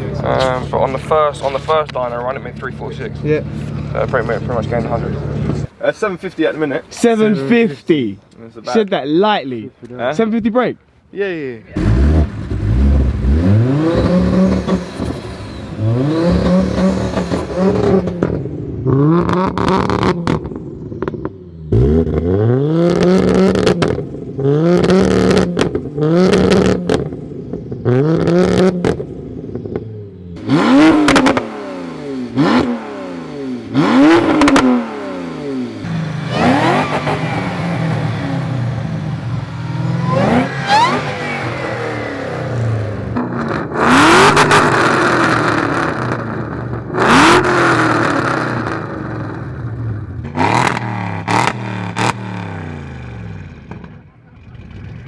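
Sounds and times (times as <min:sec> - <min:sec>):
exhaust cracks: 0:11.8 - 0:18.6, 0:29.7 - 0:52.6
car engine revving: 0:11.8 - 0:53.9.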